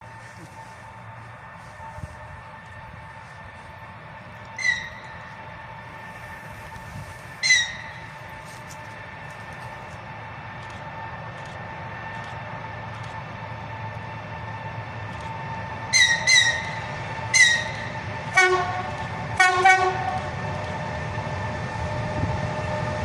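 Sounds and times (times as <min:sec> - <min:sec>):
locomotive rumble: 0:00.0 - 0:23.0
deep multi-tone horn blasts: 0:15.9 - 0:20.4.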